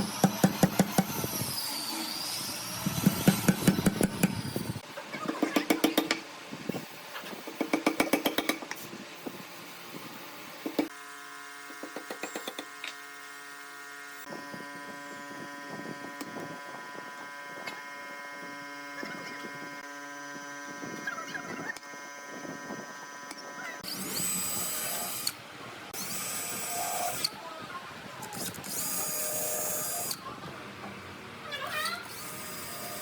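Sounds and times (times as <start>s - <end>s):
steady tool hum: 9.1s - 30.3s.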